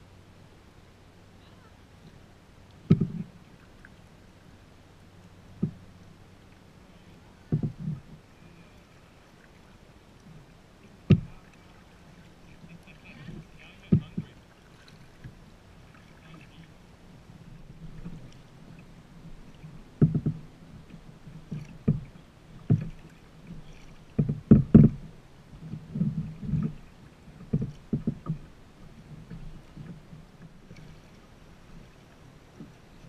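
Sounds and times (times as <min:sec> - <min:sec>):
low wash of water: 0:00.0 - 0:33.0
paddle knocking kayak hull: 0:02.8 - 0:03.9, 0:05.5 - 0:08.6, 0:10.3 - 0:16.7, 0:17.5 - 0:33.0.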